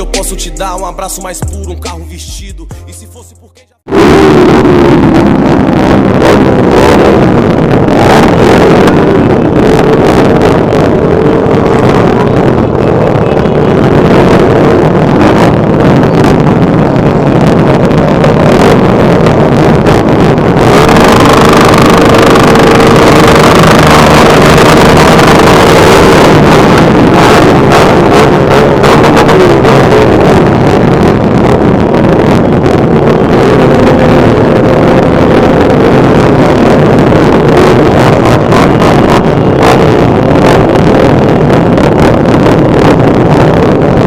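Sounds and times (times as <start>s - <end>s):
steady high tone: 0.0s - 9.8s, 19.4s - 31.6s
wind buffeting microphone: 3.9s - 44.0s.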